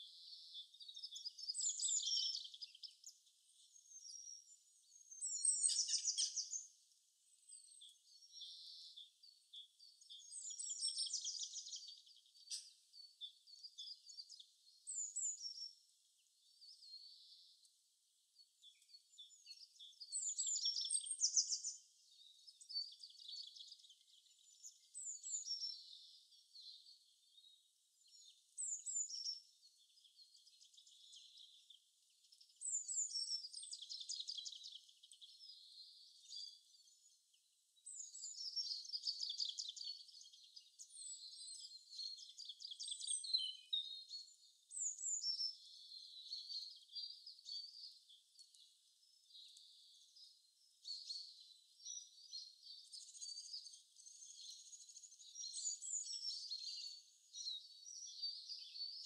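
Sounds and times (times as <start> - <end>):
birds chirping and trilling: 0.0 - 59.0.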